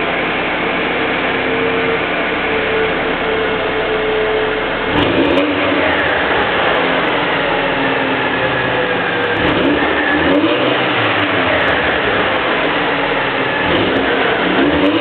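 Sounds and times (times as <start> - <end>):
car engine revving loudly: 4.6 - 15.0.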